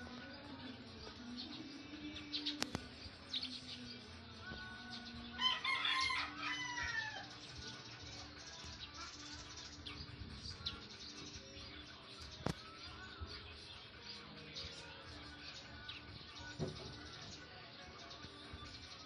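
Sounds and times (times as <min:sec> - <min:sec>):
rooster crowing: 0:05.4 - 0:07.3.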